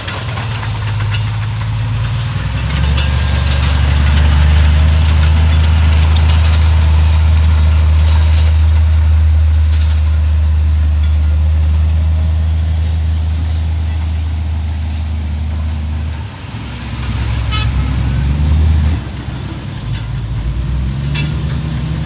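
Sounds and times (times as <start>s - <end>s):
metallic clanks and rattles: 0.0s - 11.8s
heavy diesel engine running: 0.0s - 22.0s.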